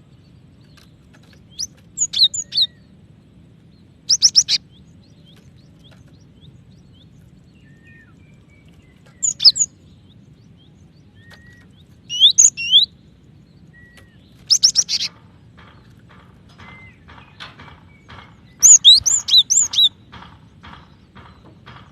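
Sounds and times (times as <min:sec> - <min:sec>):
bird chirps: 0:00.0 - 0:03.0, 0:03.7 - 0:21.8
thin bird whistles: 0:11.2 - 0:12.9.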